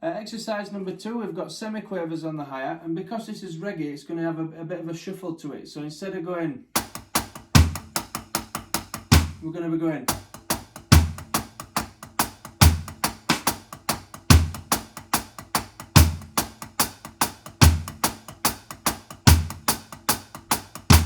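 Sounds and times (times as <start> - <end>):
drum kit reggae groove: 6.8 - 9.5, 10.1 - 21.0.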